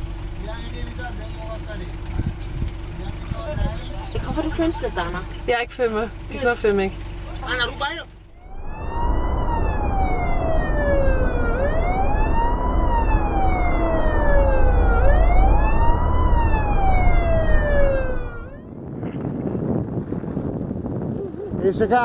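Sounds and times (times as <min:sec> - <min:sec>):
low rumble: 0:00.0 - 0:22.0
wailing siren: 0:08.4 - 0:18.9.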